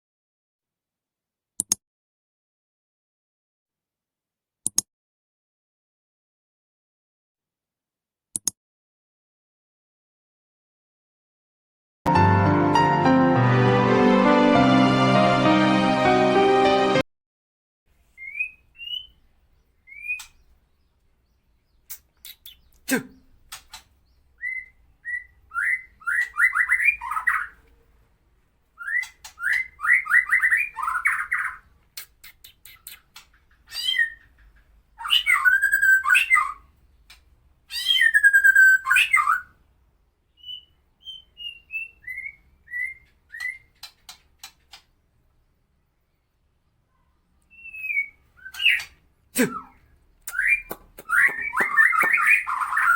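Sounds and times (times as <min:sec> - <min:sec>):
songbird singing harsh song: 0:18.2 - 0:23.4, 0:24.0 - 0:27.6, 0:28.8 - 0:33.1, 0:33.7 - 0:37.0, 0:37.7 - 0:39.6, 0:40.3 - 0:43.9, 0:47.1 - 0:52.9.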